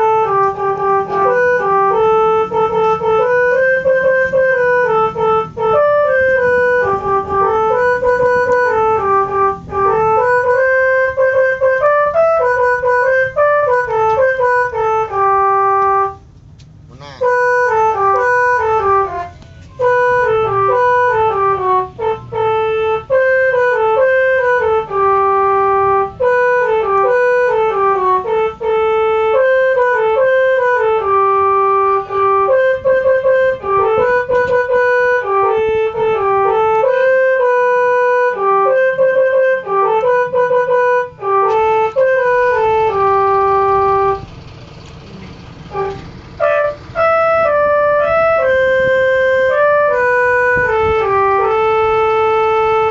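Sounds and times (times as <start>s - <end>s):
multi-tone bus horn tune: 0.0s - 52.9s.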